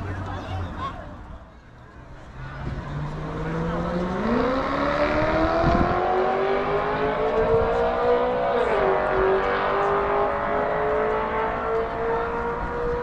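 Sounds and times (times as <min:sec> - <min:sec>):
car engine accelerating: 0:02.2 - 0:13.0.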